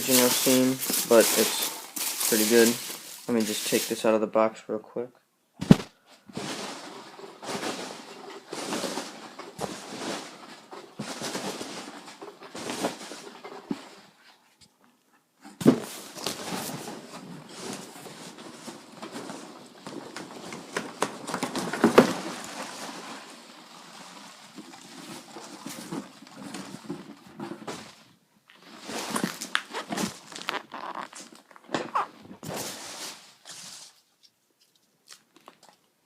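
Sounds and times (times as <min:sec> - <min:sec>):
knocks and scrapes: 0:00.0 - 0:04.1, 0:05.6 - 0:34.9
packing peanuts rustling: 0:00.0 - 0:04.1, 0:15.8 - 0:31.7.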